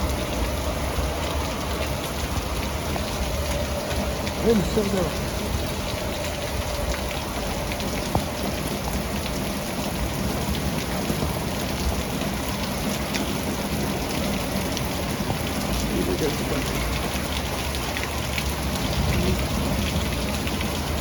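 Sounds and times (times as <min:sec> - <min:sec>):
heavy rain downpour: 0:00.0 - 0:21.0
raindrops ticking on surfaces: 0:00.0 - 0:21.0
gusting wind rumble: 0:16.6 - 0:21.0.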